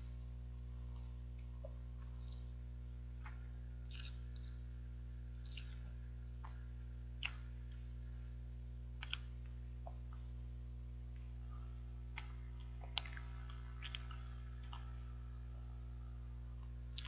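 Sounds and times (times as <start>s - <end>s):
steady low hum: 0.0s - 17.0s
mouth clicks and smacks: 3.2s - 4.6s, 5.4s - 6.6s, 7.2s - 8.2s, 9.0s - 10.2s, 12.1s - 14.9s
person chewing soft food: 3.2s - 4.7s, 5.3s - 8.4s, 9.0s - 10.4s, 11.1s - 15.2s, 16.6s - 17.0s.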